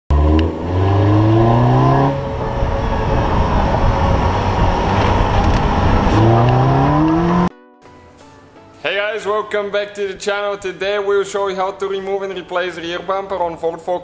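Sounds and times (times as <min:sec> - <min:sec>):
car engine revving: 0:00.1 - 0:07.5
road and wind noise: 0:00.1 - 0:07.5.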